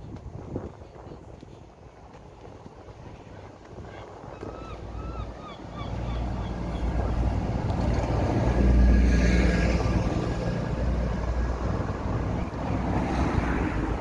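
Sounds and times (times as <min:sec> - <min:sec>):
vehicle passing by: 0:06.1 - 0:14.0.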